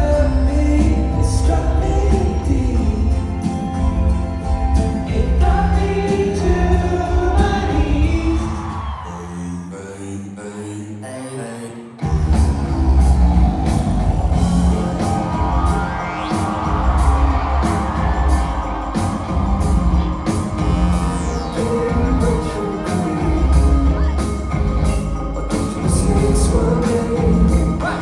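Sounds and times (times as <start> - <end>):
person singing: 0.0 - 3.7, 5.0 - 13.2, 14.5 - 28.0
live rock band playing: 0.0 - 8.6, 12.0 - 28.0
rising sweep: 12.1 - 28.0.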